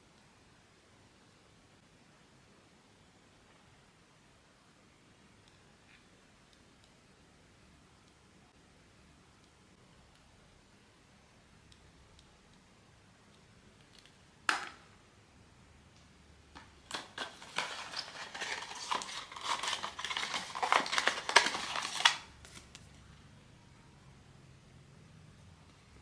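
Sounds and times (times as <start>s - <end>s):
packaging rustling and clicking: 16.6s - 22.9s
packaging snap: 16.6s - 22.9s.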